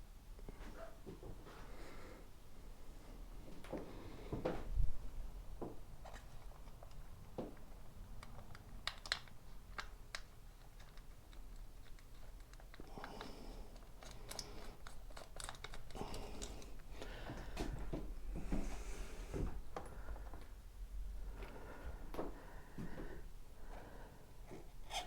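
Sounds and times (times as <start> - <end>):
small parts clicking and rustling: 6.0 - 17.1.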